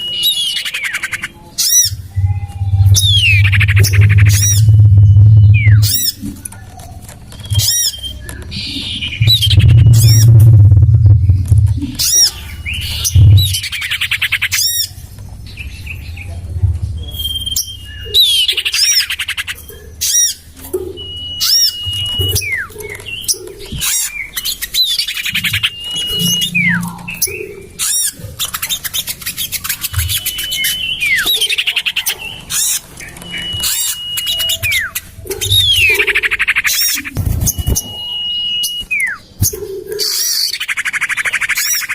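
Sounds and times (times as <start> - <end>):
bird whistles: 0.0 - 10.4, 17.0 - 41.9
harsh scratchy bird calls: 0.0 - 41.9
low rumble: 1.8 - 6.5, 8.6 - 18.6.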